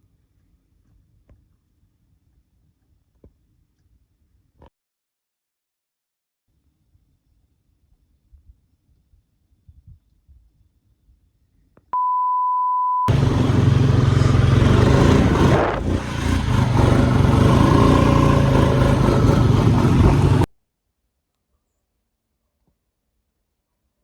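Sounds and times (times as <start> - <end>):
single-pitched beep: 12.0 - 13.1
loud rumbling noise: 13.1 - 20.5.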